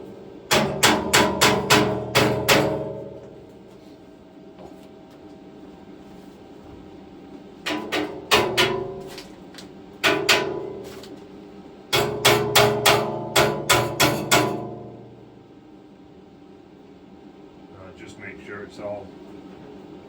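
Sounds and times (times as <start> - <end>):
hammer striking steel: 0.5 - 3.2, 7.7 - 9.2, 10.0 - 10.9, 11.9 - 15.1.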